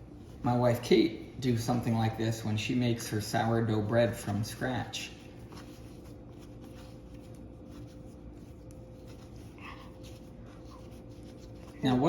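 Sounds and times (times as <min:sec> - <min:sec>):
steady low hum: 0:00.0 - 0:12.0
hands handling dough: 0:04.1 - 0:12.0.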